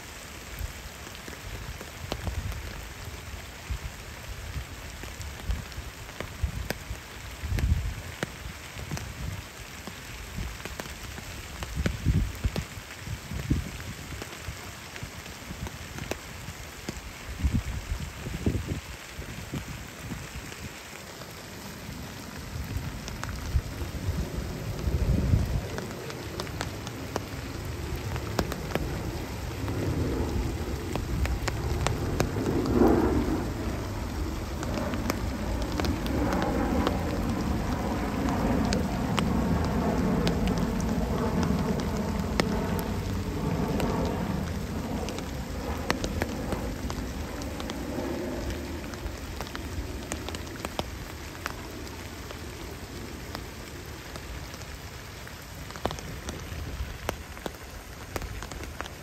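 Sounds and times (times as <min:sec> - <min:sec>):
rain falling on pond water: 0:00.0 - 0:59.0
low rumble: 0:22.4 - 0:54.6.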